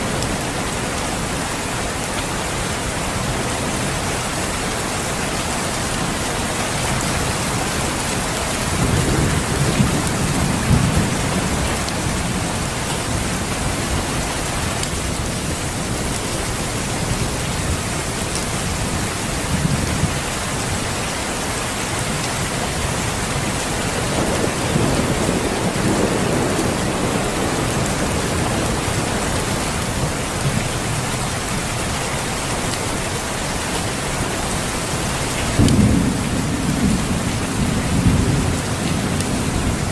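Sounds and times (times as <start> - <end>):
steady rain hiss: 0.0 - 39.9
thunder rumbling: 6.9 - 20.7, 22.7 - 31.7, 35.0 - 39.9.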